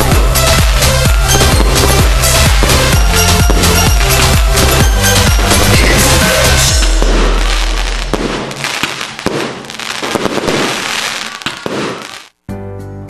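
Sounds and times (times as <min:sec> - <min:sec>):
low rumble: 0:00.0 - 0:08.7
fireworks crackling and popping: 0:00.0 - 0:12.4.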